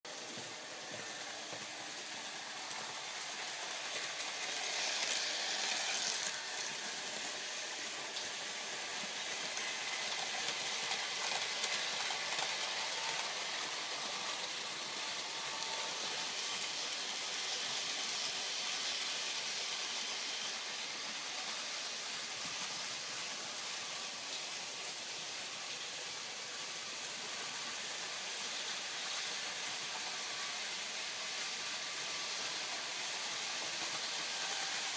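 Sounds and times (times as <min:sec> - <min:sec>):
model train motors whirring: 0:00.2 - 0:34.9.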